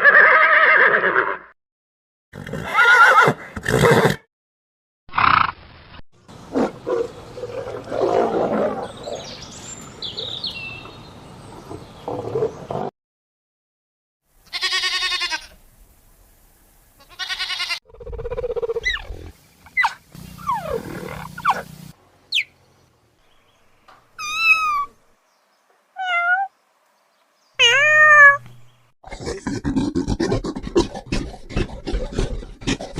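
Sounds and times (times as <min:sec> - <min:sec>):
rapid rough animal call: 0:17.2 - 0:22.0, 0:29.0 - 0:32.9
animal cries: 0:19.8 - 0:21.7, 0:24.2 - 0:25.0, 0:26.0 - 0:26.5, 0:27.6 - 0:28.5.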